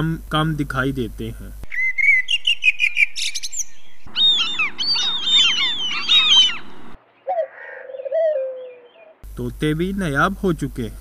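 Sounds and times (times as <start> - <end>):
birds chirping: 1.7 - 9.2
lower falling bird call: 1.7 - 9.2.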